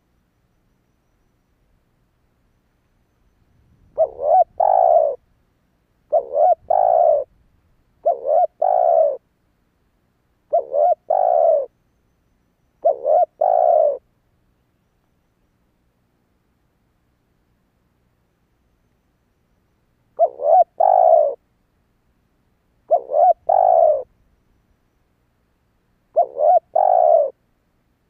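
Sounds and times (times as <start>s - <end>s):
dove cooing: 3.9s - 5.2s, 6.1s - 7.3s, 8.0s - 9.2s, 10.5s - 11.7s, 12.8s - 14.0s, 20.2s - 21.4s, 22.9s - 24.1s, 26.1s - 27.4s.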